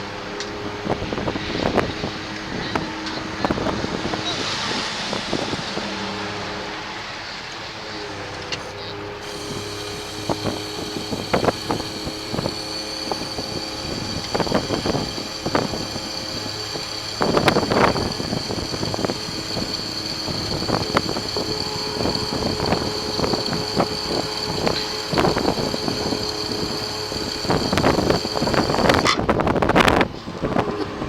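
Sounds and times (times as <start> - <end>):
truck engine running with whine: 0.0 - 31.0.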